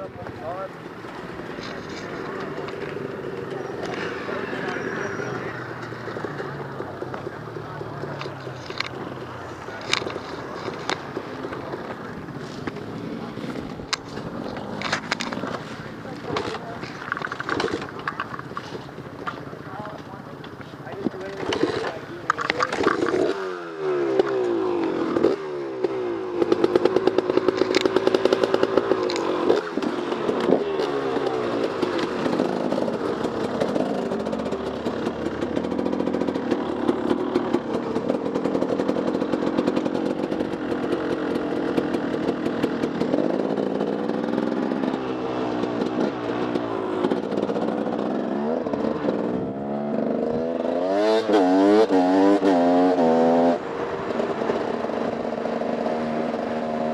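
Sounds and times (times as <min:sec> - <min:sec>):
dirt bike engine revving: 0:00.0 - 0:20.1, 0:20.8 - 0:56.9
bike clattering over rough ground: 0:05.8 - 0:23.4.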